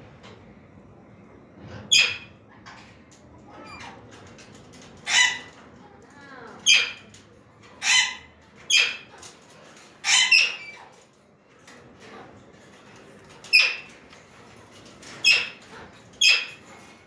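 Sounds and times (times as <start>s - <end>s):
parakeets harsh calls: 5.0s - 5.6s, 7.8s - 9.1s, 10.0s - 10.8s.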